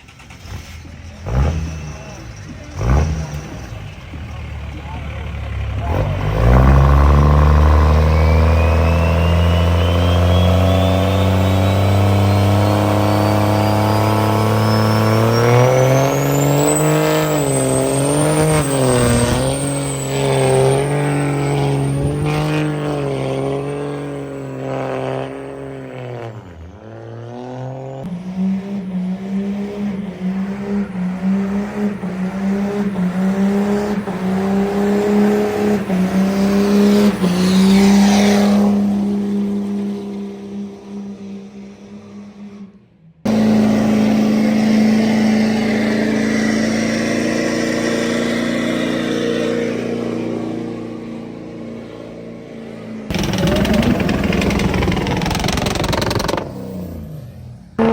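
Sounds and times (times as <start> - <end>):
truck engine revving: 0.0 - 57.9
thin rising whistle: 7.8 - 18.0.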